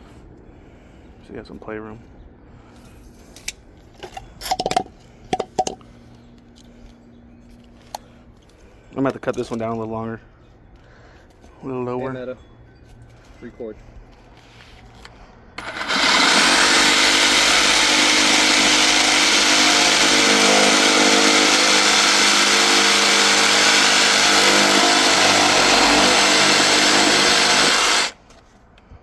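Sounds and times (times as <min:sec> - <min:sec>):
power saw cutting plastic pipe: 0:15.6 - 0:28.2.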